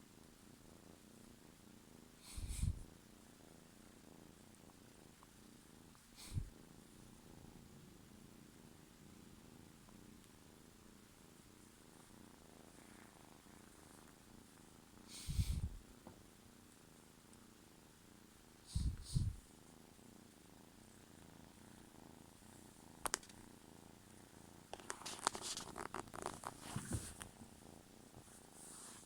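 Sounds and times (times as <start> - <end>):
kitten purring: 0.0 - 29.0
rustles near microphone: 24.8 - 27.5.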